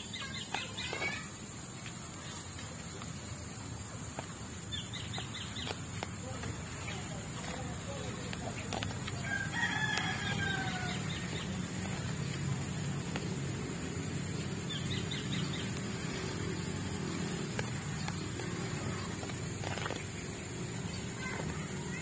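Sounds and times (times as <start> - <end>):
bird call falling: 8.4 - 11.6.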